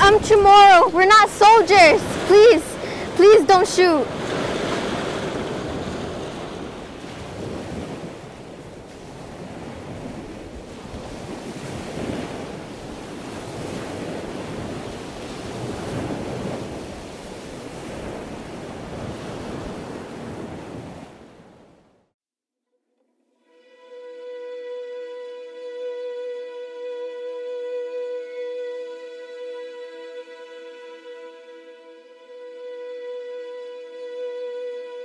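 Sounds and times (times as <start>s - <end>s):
wind buffeting microphone: 0.0s - 21.6s
surf washing on sand: 0.0s - 21.8s.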